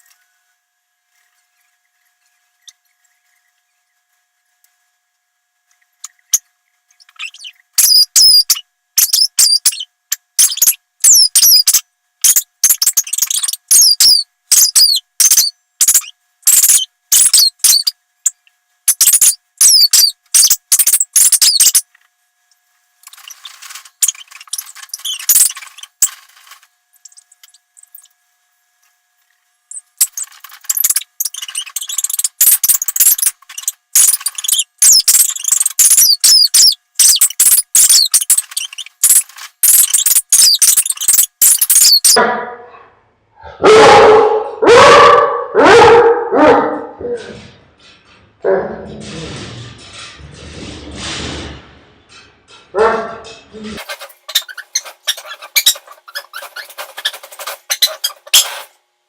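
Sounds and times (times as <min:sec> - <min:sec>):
rough rustling: 0:53.8 - 0:58.7
squeaky dog toy squeaking: 0:53.8 - 0:58.7.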